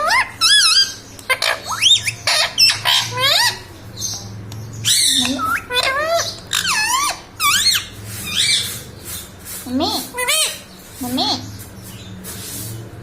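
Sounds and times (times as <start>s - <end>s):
parrot squawking and whistling: 0.0s - 3.7s, 4.8s - 8.8s
parrot harsh screech: 4.9s - 8.7s.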